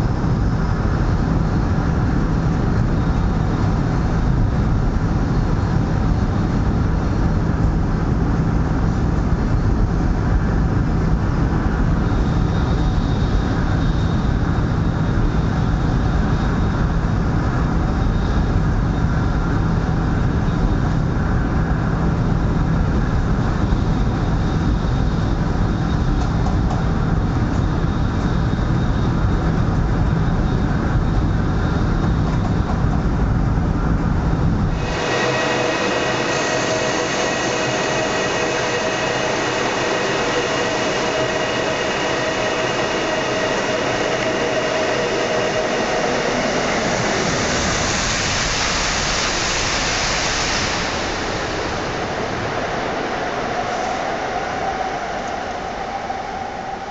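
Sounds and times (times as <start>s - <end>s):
train running noise: 0.0s - 56.9s
faint high whine: 33.5s - 56.9s.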